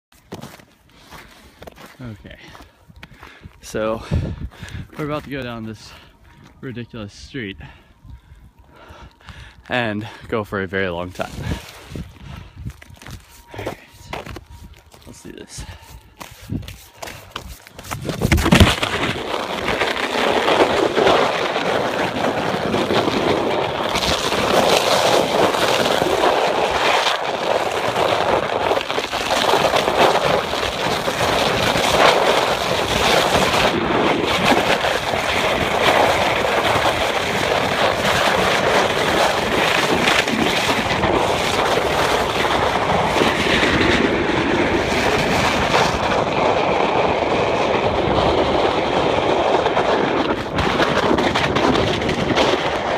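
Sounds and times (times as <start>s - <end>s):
wind buffeting microphone: 2.0s - 52.9s
board scraping over ice: 16.2s - 52.9s.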